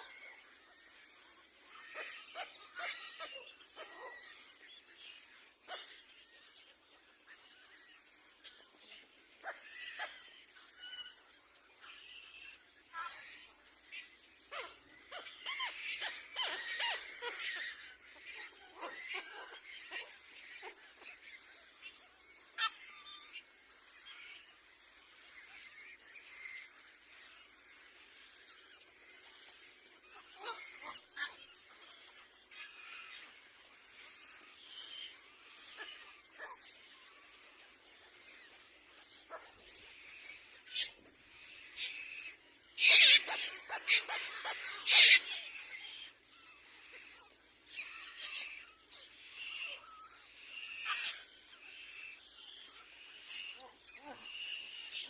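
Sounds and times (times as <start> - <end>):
high squeaky bird calls: 0.0 - 55.0.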